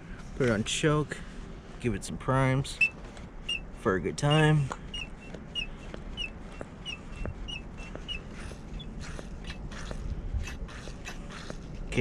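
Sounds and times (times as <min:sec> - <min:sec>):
small bird chirping: 0:04.3 - 0:10.0.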